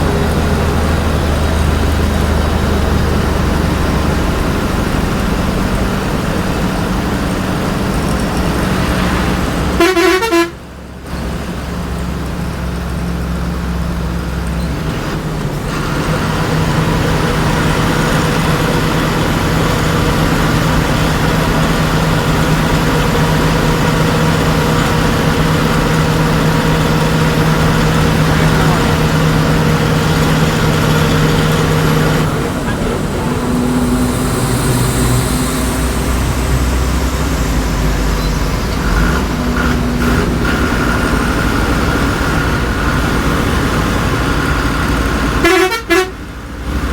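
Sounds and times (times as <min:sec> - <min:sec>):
bus diesel engine running: 0:00.0 - 0:46.9
bus horn blast: 0:09.6 - 0:10.8, 0:45.2 - 0:46.5.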